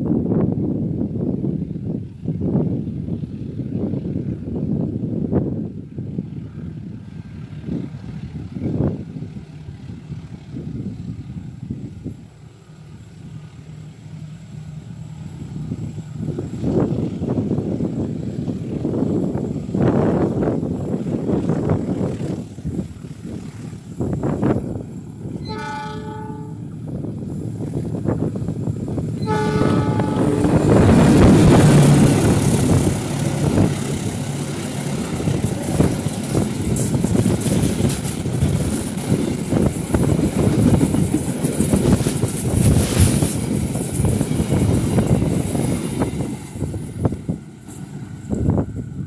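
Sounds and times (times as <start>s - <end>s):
locomotive passing: 0.8s - 49.0s
train horn blasts: 25.4s - 26.8s, 29.2s - 32.5s
carriage wheels rumbling and clicking: 32.4s - 45.5s.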